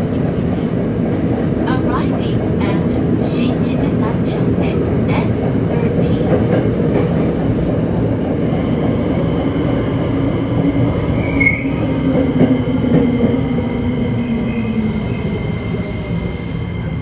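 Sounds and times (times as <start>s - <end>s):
rumble of train wheels on rails: 0.0s - 17.0s
high wheel squeal: 11.2s - 11.9s.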